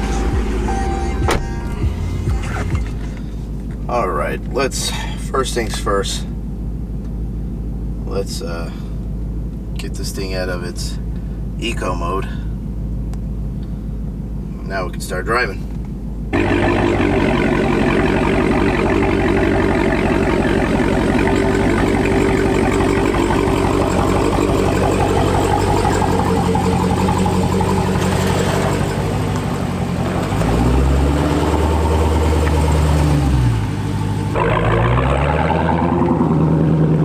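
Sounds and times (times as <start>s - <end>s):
loud car engine revving: 0.0s - 4.1s, 16.3s - 37.0s.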